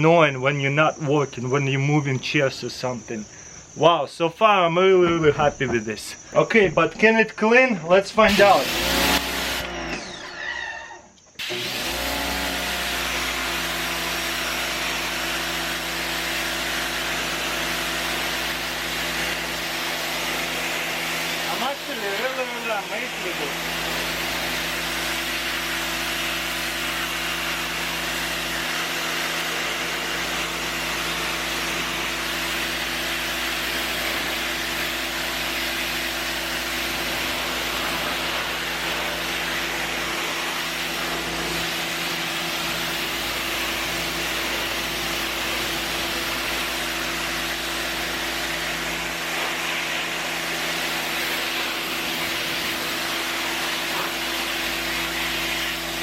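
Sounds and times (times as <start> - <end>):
pressure washer motor humming: 8.0 - 10.5, 11.4 - 56.0
high-pressure water jet hissing: 8.2 - 10.2, 11.4 - 56.0.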